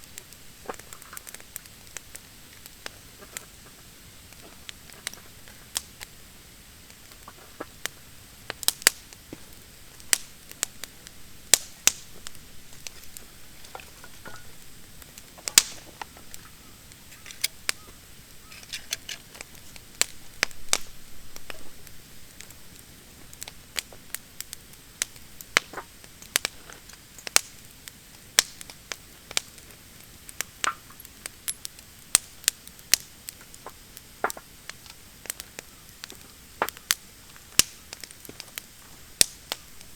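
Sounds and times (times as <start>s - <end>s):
wood fire crackling: 0.0s - 39.9s
sharp pops and snaps: 14.6s - 16.5s, 28.2s - 39.9s.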